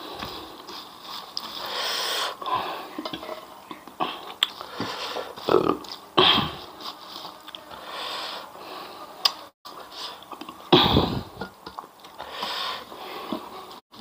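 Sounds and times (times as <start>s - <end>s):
loud sniff: 1.6s - 2.4s.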